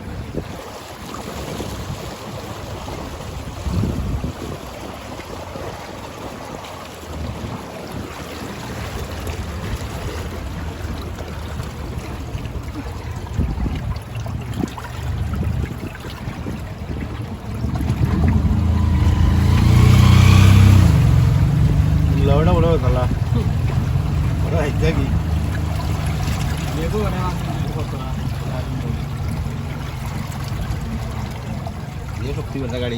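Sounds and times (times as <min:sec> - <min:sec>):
wind buffeting microphone: 0:00.0 - 0:32.9
low rumble: 0:09.4 - 0:31.8.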